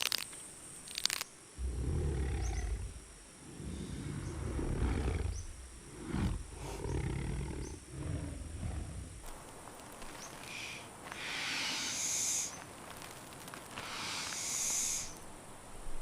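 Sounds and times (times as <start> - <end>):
high insect drone: 0.0 - 16.0
deep animal roars: 1.6 - 9.2.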